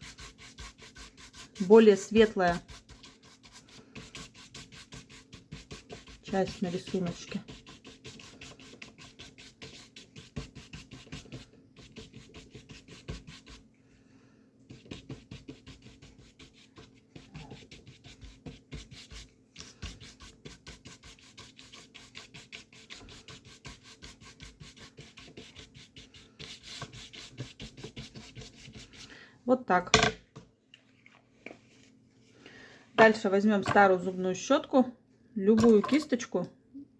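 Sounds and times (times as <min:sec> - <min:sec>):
paintbrush scrubbing paper: 0:00.0 - 0:13.6, 0:14.7 - 0:29.1.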